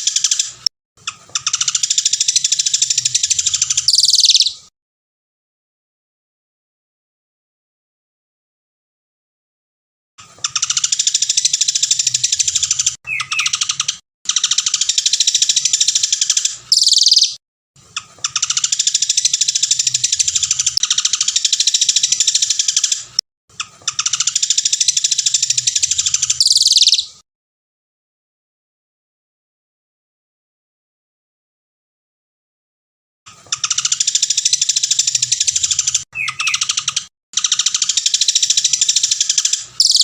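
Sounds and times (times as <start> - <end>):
songbird trilling: 1.4 - 4.6, 10.6 - 17.4, 24.0 - 27.1, 33.6 - 40.0.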